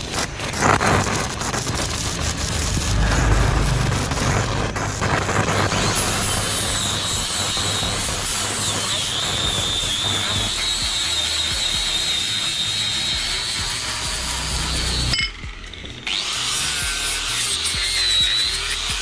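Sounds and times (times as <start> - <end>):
power tool running: 0.4 - 18.0
high wavering whine: 0.7 - 8.0.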